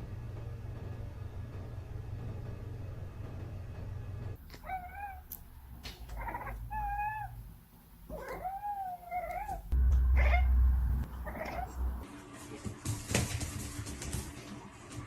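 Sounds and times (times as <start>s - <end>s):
steady low hum: 0.0s - 12.1s
cat meowing: 4.5s - 7.4s, 8.1s - 12.0s.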